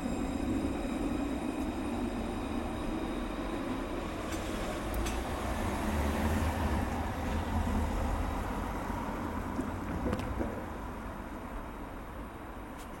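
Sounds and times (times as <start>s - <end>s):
tram rumbling in motion: 0.0s - 13.0s.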